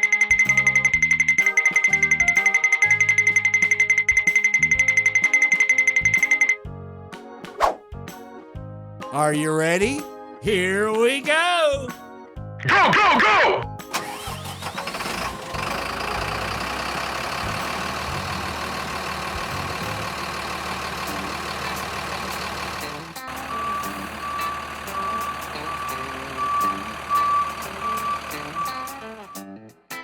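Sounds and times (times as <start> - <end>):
reversing alarm beeping: 0.0 - 6.6, 23.4 - 29.5
truck engine running: 13.9 - 29.4.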